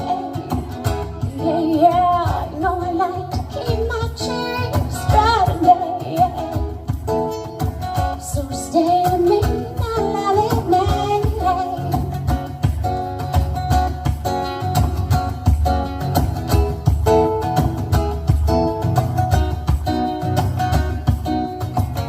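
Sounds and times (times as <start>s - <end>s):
person singing: 0.0s - 6.8s
acoustic guitar strumming: 0.0s - 22.0s.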